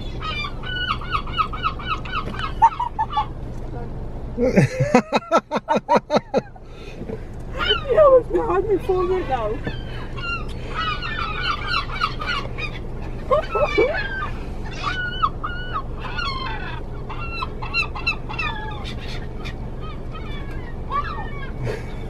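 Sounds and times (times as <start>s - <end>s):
seagulls squawking: 0.0s - 3.4s, 7.6s - 22.0s.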